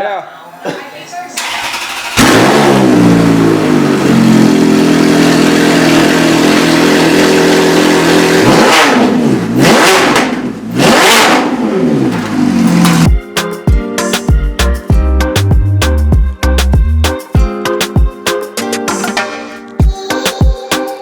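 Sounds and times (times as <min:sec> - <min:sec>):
engine revving blips: 0:01.4 - 0:13.1
car engine idling loudly: 0:01.7 - 0:09.6.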